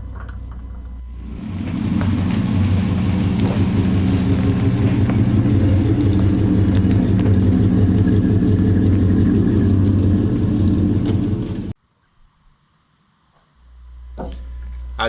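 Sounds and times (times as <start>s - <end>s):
vehicle engine running: 0.0s - 11.8s.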